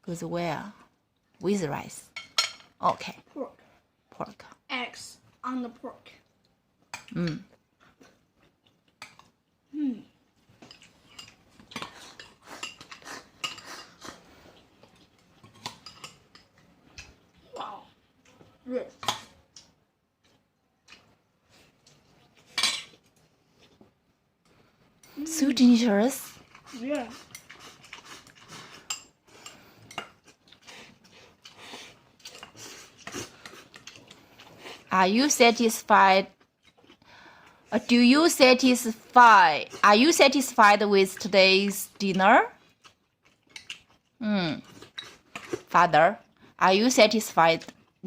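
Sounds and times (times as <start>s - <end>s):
eating noises: 10.6s - 17.5s, 26.2s - 35.0s, 42.6s - 46.6s.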